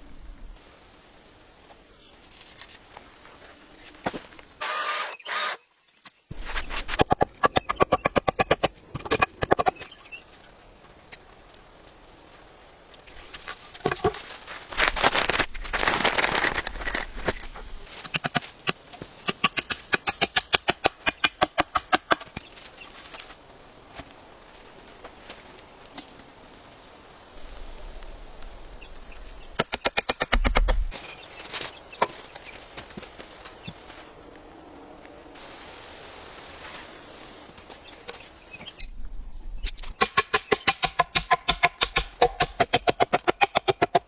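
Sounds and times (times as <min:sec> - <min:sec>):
scraping and rustling: 0:10.2 - 0:19.2.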